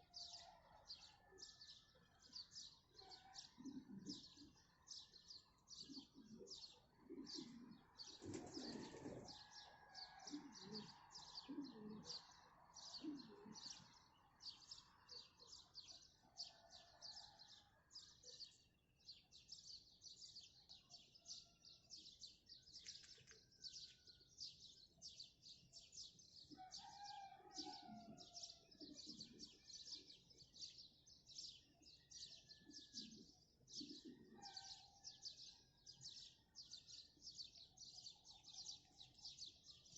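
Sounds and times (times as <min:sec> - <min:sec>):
small birds chirping: 0:04.1 - 0:16.0.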